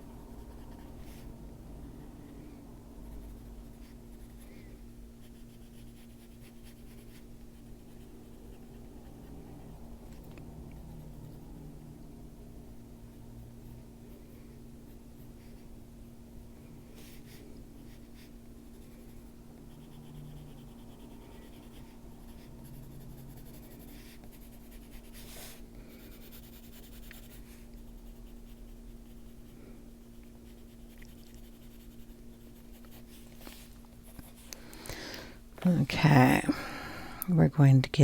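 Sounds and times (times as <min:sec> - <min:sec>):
steady low hum: 0:00.0 - 0:38.0
pencil scratching on paper: 0:03.1 - 0:09.8, 0:17.0 - 0:34.4.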